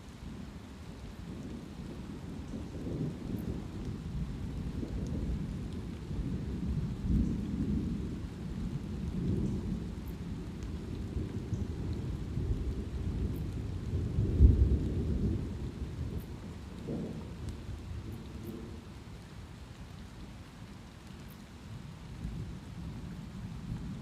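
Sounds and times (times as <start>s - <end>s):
light rain falling: 0.0s - 24.0s
thunder rumbling: 1.3s - 19.2s.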